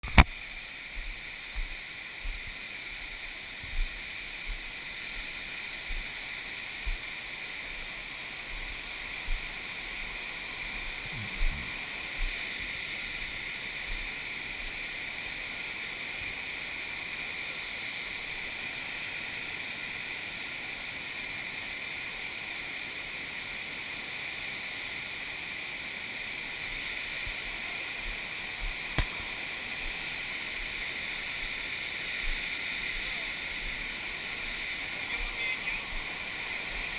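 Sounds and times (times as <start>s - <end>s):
waterfall rushing: 0.1s - 36.9s
short low thumps: 11.1s - 12.3s.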